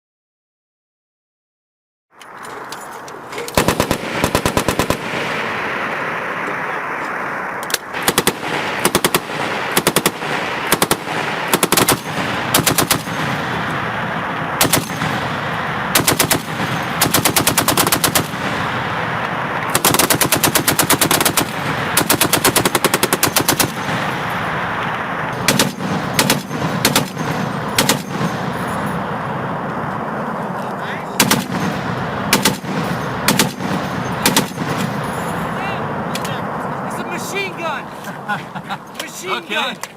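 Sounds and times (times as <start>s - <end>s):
steady background noise: 2.1s - 39.9s
machine guns firing: 3.5s - 6.6s, 7.7s - 29.4s, 31.2s - 36.1s.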